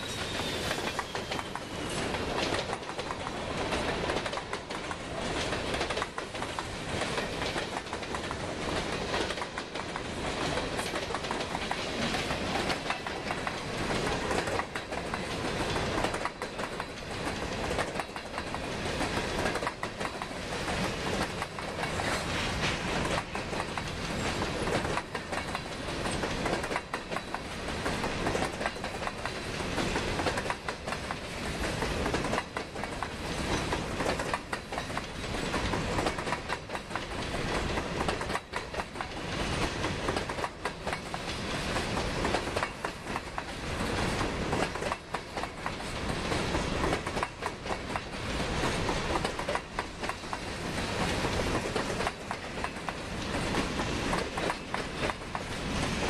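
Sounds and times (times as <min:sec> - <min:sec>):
wheels clattering over rail joints: 0:00.1 - 0:56.0.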